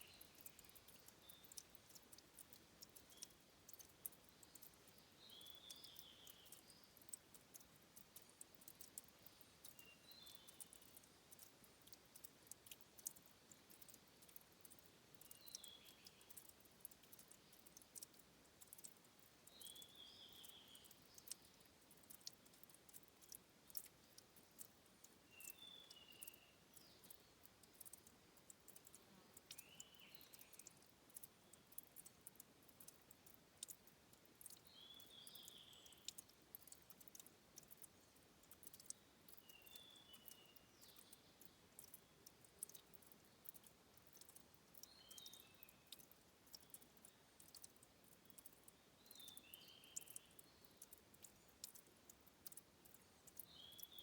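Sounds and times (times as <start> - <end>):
water trickling and dripping: 0.0 - 54.0.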